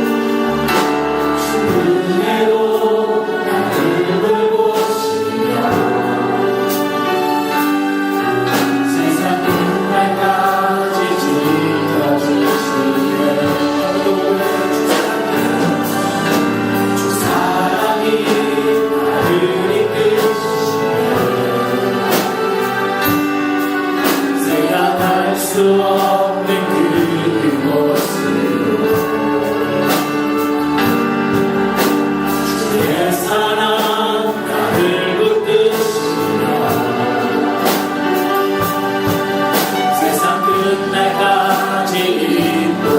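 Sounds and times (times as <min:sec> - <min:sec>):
choir singing worship song: 0:00.0 - 0:42.9
instrumental accompaniment with beat: 0:00.0 - 0:42.9.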